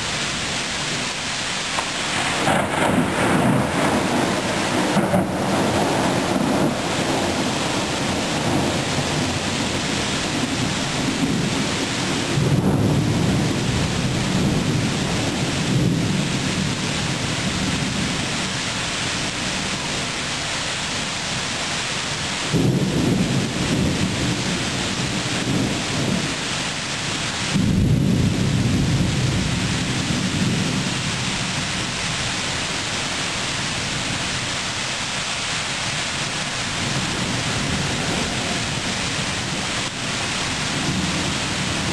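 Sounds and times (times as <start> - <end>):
heavy rain: 0.0 - 41.9
rolling thunder: 1.8 - 20.2, 22.4 - 32.2, 36.2 - 41.9.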